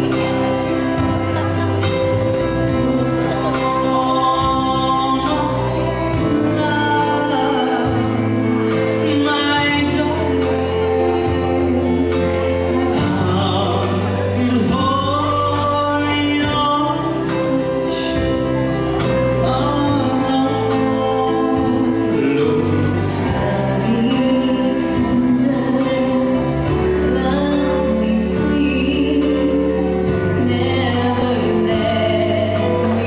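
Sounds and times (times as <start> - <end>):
band with steady beat: 0.0 - 33.0.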